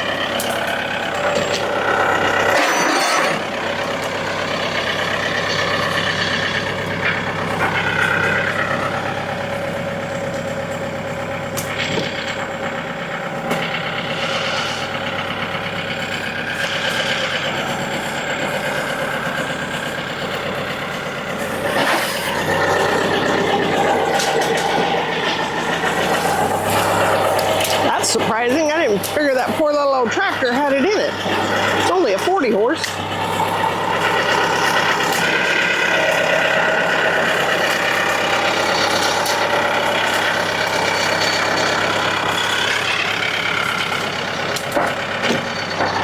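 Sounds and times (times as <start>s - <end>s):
tractor engine under heavy load: 0.0s - 46.0s.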